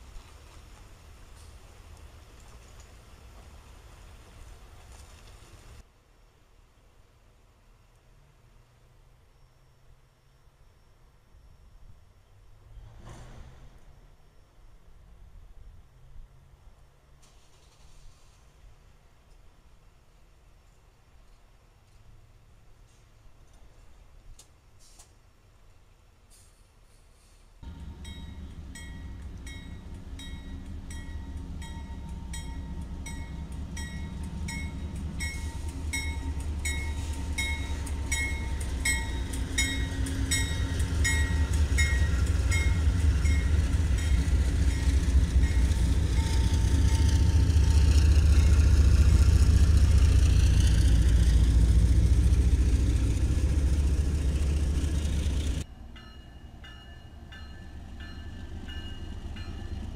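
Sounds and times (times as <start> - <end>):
diesel locomotive engine rumble: 0.0 - 5.9, 26.2 - 59.9
railroad crossing bells ringing: 27.6 - 59.9.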